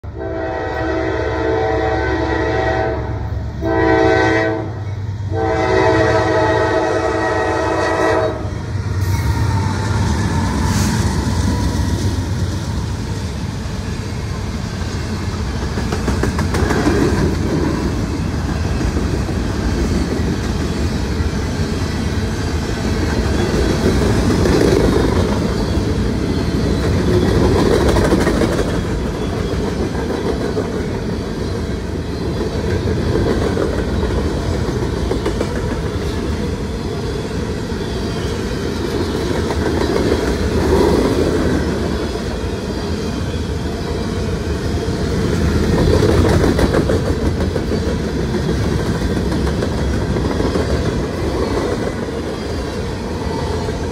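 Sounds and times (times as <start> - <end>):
train horn blasts: 0.0 - 9.9
train rumble and wheel clatter: 0.0 - 53.9.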